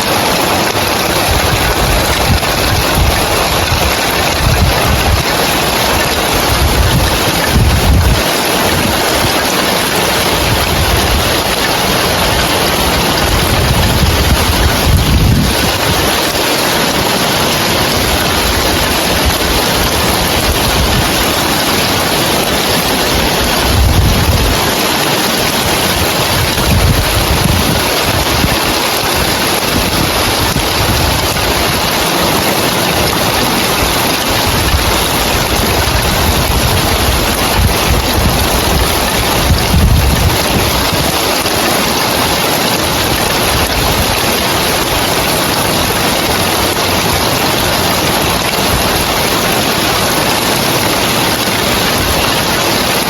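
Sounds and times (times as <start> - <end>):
heavy rain on roof tiles: 0.0 - 53.0
wind rumble on microphone: 0.1 - 53.0.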